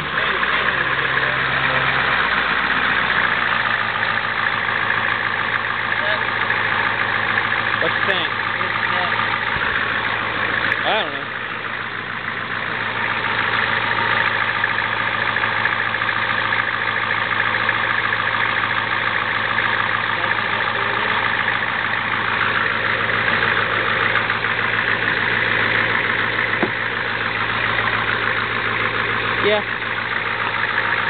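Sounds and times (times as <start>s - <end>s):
diesel engine idling clatter: 0.0s - 31.0s.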